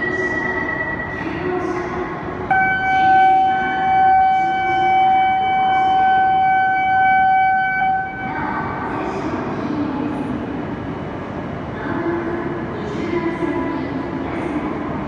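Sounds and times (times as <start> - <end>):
train rail rumble: 0.0 - 15.0
horn-like warning tone: 2.5 - 8.5.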